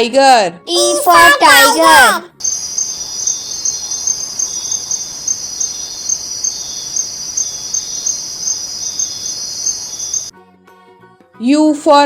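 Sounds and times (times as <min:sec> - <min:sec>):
insect trill: 0:02.4 - 0:10.3.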